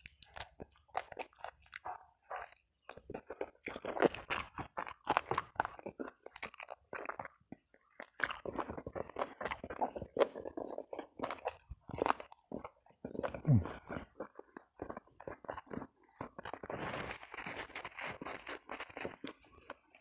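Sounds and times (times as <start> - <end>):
chewing with mouth clicks: 0.0 - 20.0
crisp crunching: 0.0 - 20.0.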